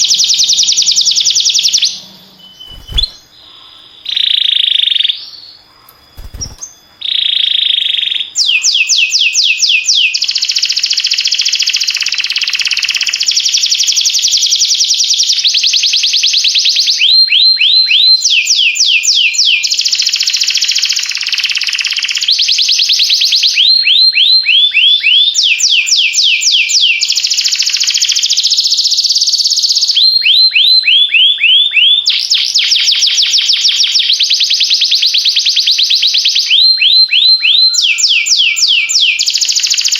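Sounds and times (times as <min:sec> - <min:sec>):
canary singing trills: 0:00.0 - 0:13.7.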